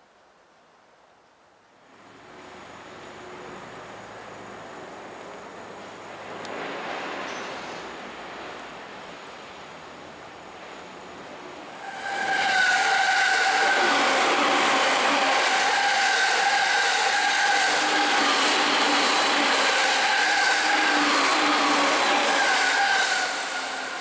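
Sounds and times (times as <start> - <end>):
electric train passing: 11.4 - 24.0
high steady squeal: 11.7 - 24.0.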